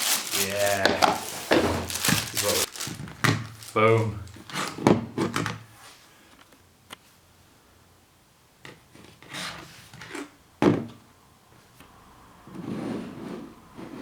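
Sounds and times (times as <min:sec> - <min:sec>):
box rubbing and sliding: 0:00.8 - 0:02.4, 0:12.5 - 0:14.0.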